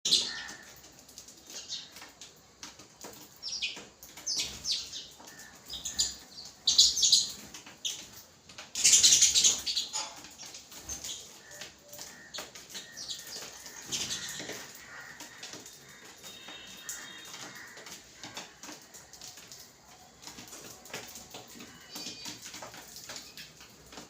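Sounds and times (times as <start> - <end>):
sparrows chirping: 3.1 - 17.9, 20.2 - 24.0.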